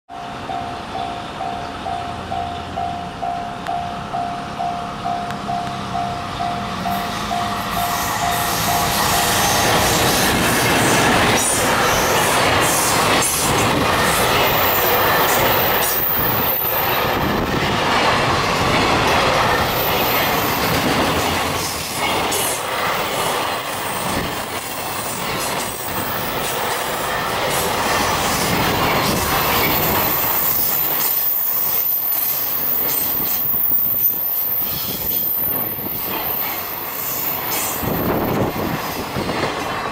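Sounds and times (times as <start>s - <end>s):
train wheels rumbling on rails: 0.1s - 39.9s
wheels clacking over rail joints: 3.6s - 33.9s
high wheel squeal: 5.6s - 17.4s, 28.3s - 39.0s.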